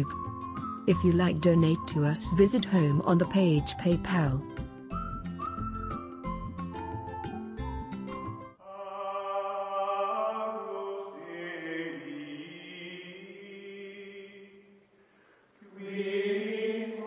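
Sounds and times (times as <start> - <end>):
slow choral chanting: 8.6 - 15.0, 15.6 - 17.0.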